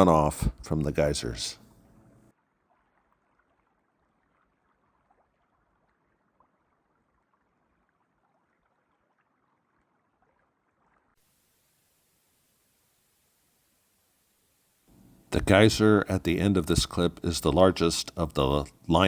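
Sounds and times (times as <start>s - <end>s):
flat steady faint hiss: 0.0s - 2.3s, 11.2s - 19.0s
faint river water running: 0.0s - 19.0s
small splashy ticks: 2.4s - 11.2s.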